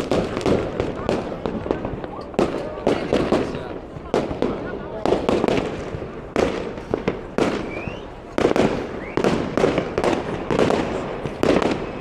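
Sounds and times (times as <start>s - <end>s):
fireworks banging and crackling: 0.0s - 12.0s
rising firework whistle: 7.4s - 12.0s.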